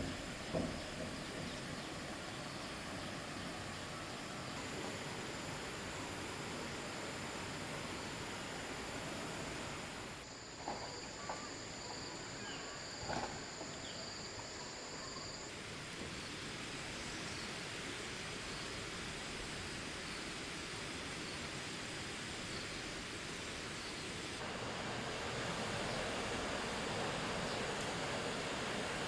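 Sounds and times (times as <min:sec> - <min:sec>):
faint knocks: 0:00.0 - 0:01.9
steady background hiss: 0:00.0 - 0:29.0.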